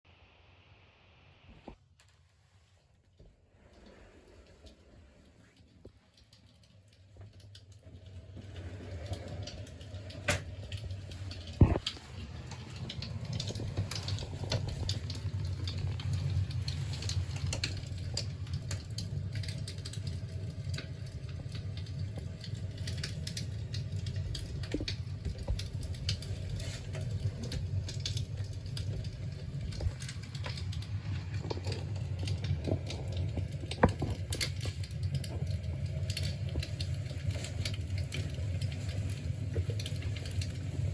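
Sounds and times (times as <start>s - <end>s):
fire crackling and popping: 1.4s - 40.9s
low rumble: 7.5s - 40.9s.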